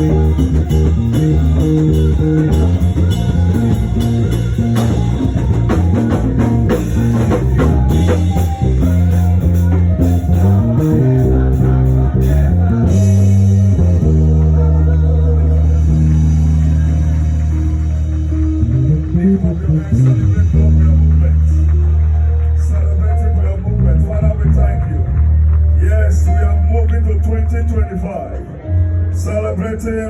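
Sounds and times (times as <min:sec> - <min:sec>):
drum kit: 0:00.0 - 0:22.6
electric guitar: 0:00.0 - 0:29.5
bass guitar: 0:00.0 - 0:30.0
live band playing praise music: 0:00.0 - 0:30.0.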